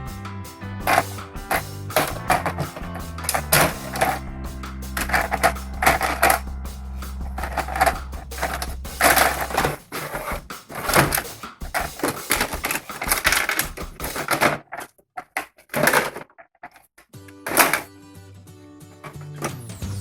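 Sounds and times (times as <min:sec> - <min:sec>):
plastic toy pieces clicking: 0:11.8 - 0:16.8.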